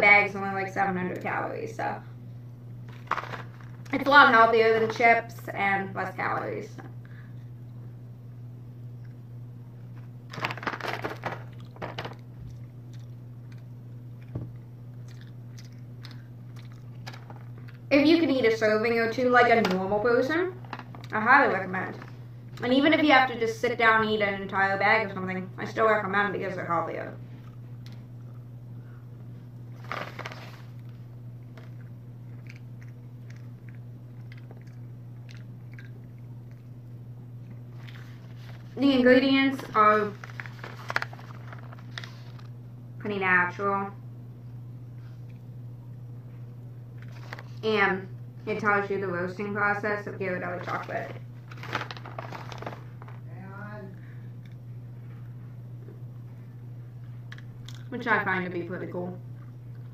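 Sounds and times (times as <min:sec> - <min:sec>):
steady low hum: 0:00.0 - 0:59.9
chewing and crunching nuts: 0:02.9 - 0:04.0, 0:10.3 - 0:17.9, 0:29.7 - 0:38.7, 0:57.2 - 0:57.9, 0:59.3 - 0:59.9.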